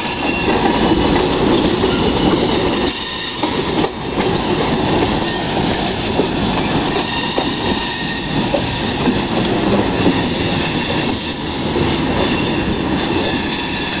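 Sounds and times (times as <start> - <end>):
freight cars rumbling on rails: 0.0 - 14.0
faint high wheel squeal: 10.1 - 12.6.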